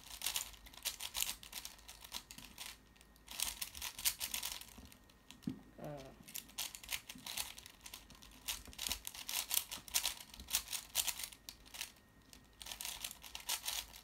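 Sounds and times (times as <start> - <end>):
puzzle cube clicking: 12.6 - 14.0.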